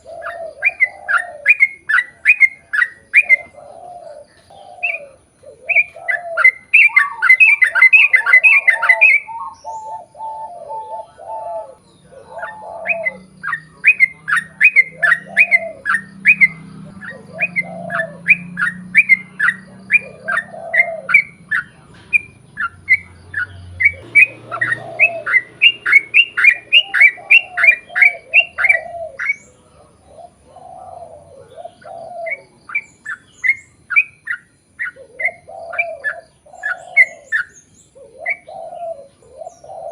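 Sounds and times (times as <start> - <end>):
lower rounder bird notes: 0.0 - 39.9
bird song of sharp falling chirps: 11.7 - 29.7.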